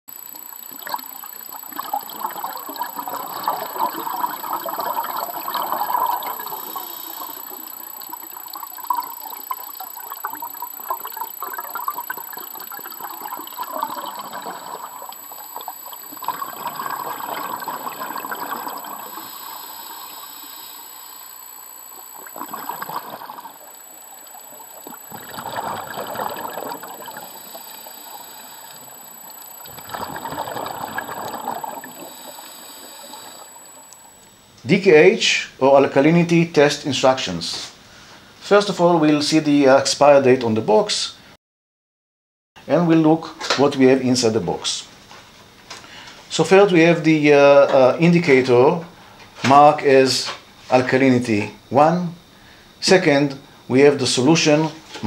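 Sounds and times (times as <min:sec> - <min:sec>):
flowing water: 0:00.1 - 0:34.4.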